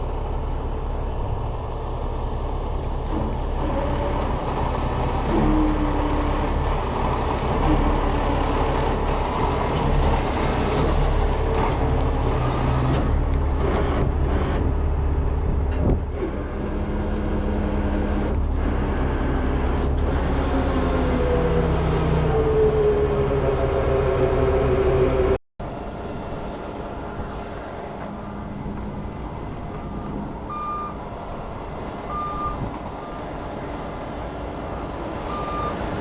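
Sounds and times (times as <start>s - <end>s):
diesel truck engine running: 0.0s - 36.0s.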